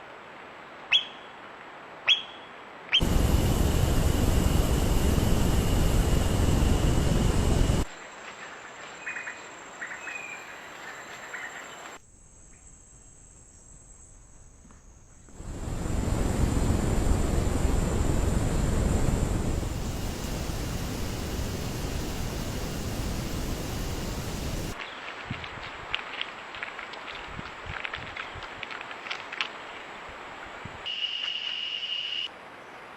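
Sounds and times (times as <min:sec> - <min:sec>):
steady rushing noise: 0:03.0 - 0:07.9, 0:15.3 - 0:24.8
steady hiss: 0:03.0 - 0:08.8, 0:15.3 - 0:26.5.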